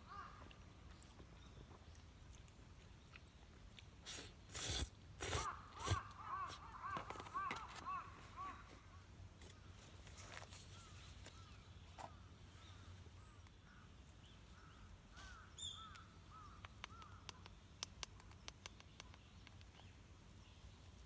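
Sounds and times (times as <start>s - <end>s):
crows cawing: 0.0s - 0.5s, 5.4s - 9.0s
sharp clicks: 15.9s - 19.8s.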